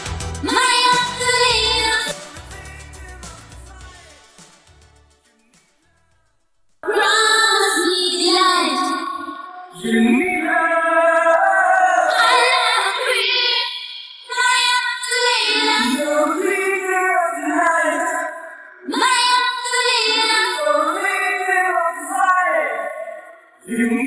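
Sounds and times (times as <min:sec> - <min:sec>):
woman singing pop melody: 0:00.0 - 0:04.2.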